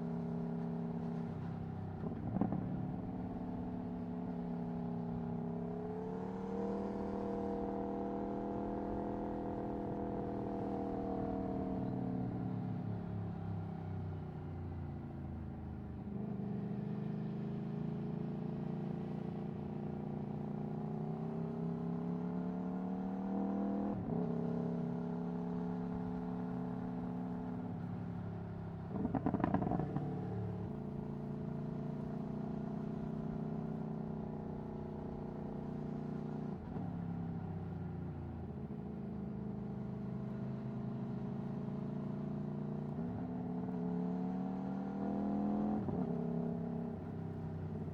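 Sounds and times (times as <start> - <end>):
motorcycle engine accelerating: 28.8 - 37.3.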